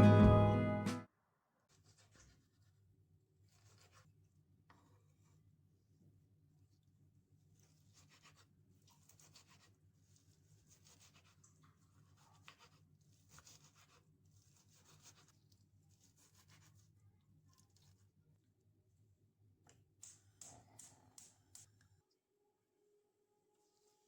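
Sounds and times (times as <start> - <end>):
low steady hum: 0.0 - 1.0.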